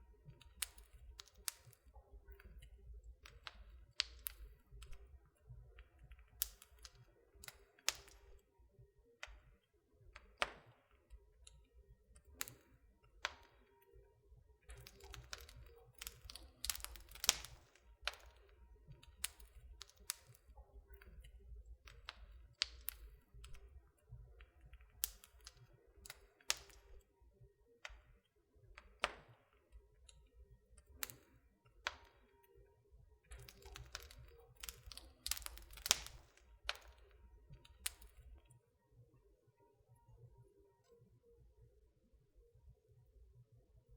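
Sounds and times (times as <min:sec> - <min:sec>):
wood fire crackling and popping: 0:00.2 - 0:08.5, 0:09.2 - 0:14.0, 0:14.6 - 0:27.1, 0:30.8 - 0:32.6, 0:33.3 - 0:38.5.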